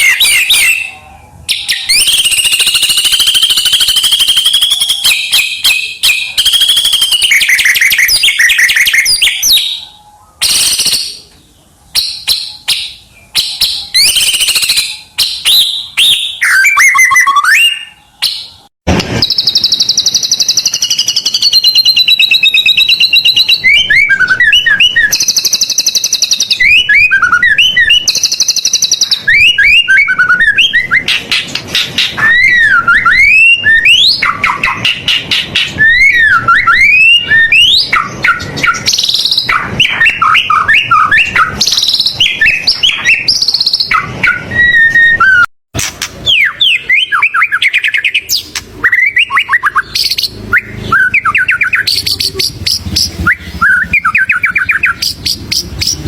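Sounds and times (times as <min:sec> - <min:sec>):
songbird singing trills and whistles: 0:00.0 - 0:56.0.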